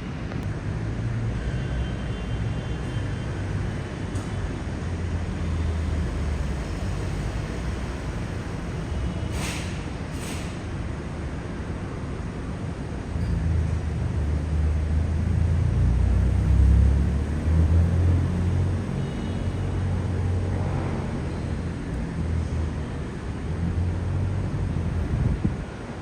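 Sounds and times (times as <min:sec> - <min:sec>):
road traffic rumble: 0:00.0 - 0:26.0
short hisses: 0:09.3 - 0:10.6.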